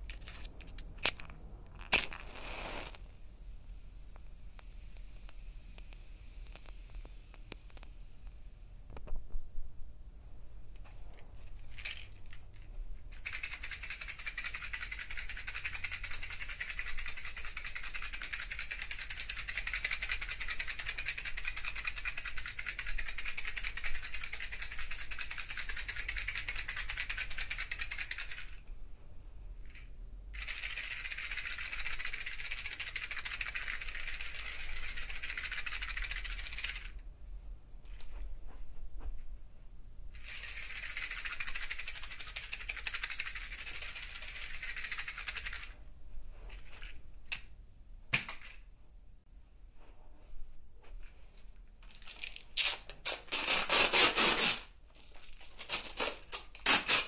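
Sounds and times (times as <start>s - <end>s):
rapid rattle of small clicks: 11.7s - 28.6s, 30.4s - 37.0s, 40.2s - 45.7s.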